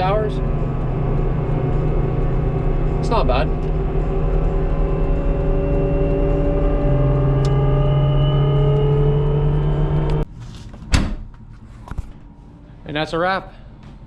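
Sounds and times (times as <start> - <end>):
vehicle engine running: 0.0 - 10.3.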